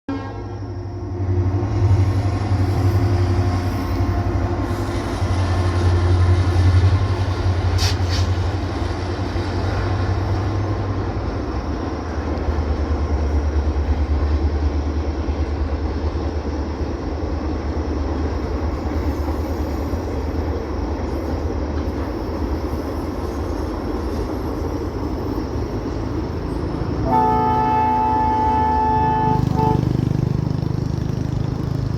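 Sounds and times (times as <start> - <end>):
locomotive horn blast: 0.1 - 1.6, 27.0 - 30.5
train rumbling: 0.1 - 31.9.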